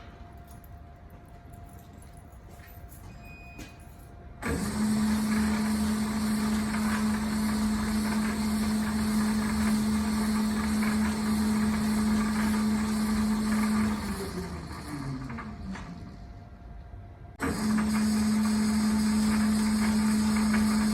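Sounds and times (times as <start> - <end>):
metal lathe motor running: 4.4 - 16.3, 17.4 - 20.9.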